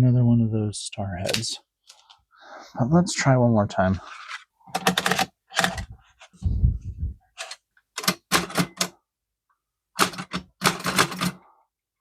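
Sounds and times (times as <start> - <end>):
typewriter keystrokes clacking: 8.0 - 8.9, 10.0 - 11.4.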